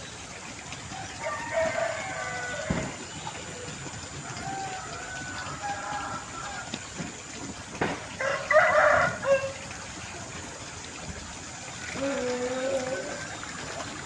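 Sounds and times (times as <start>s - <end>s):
rooster crowing: 1.2s - 2.9s, 4.3s - 6.7s, 8.2s - 9.6s.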